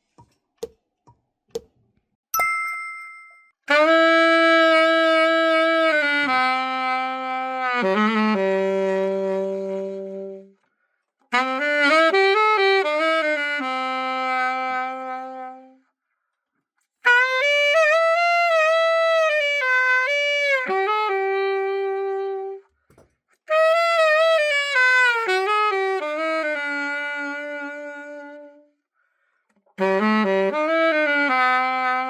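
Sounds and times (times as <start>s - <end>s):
saxophone solo: 3.7s - 10.6s, 11.3s - 15.8s, 17.0s - 22.7s, 23.5s - 28.8s, 29.8s - 32.0s.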